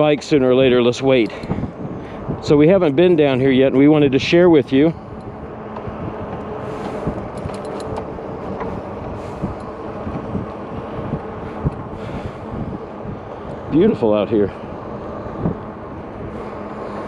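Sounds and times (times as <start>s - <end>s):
faint electric motor hum: 0.0s - 17.0s
tyres rolling rush: 0.0s - 17.0s
wind buffeting microphone: 0.0s - 17.0s
small rattles and knocks: 5.7s - 10.6s.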